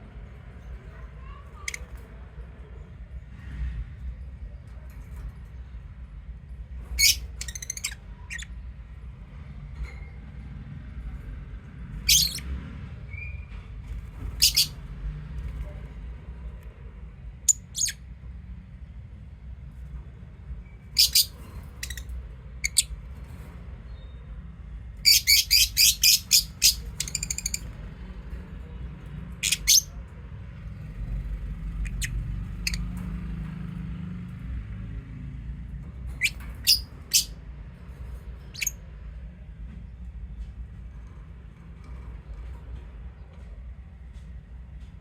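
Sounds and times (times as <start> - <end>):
lovebirds chirping: 12.1 - 12.4, 14.4 - 14.8, 20.9 - 22.9, 25.0 - 27.8, 36.2 - 37.3.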